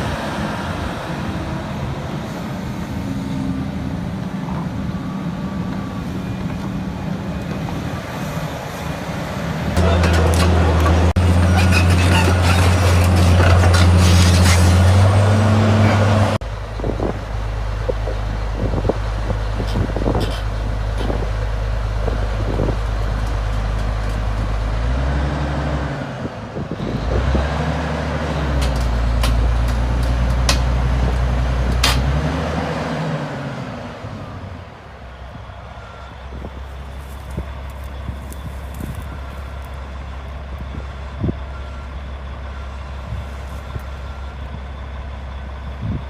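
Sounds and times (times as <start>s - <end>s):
diesel engine revving: 0.0s - 46.0s.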